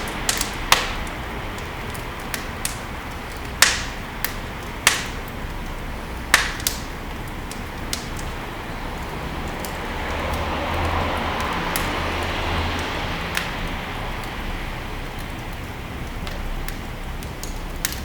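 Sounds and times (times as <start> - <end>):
fire popping: 0.0 - 18.0
wood fire crackling: 0.0 - 18.0.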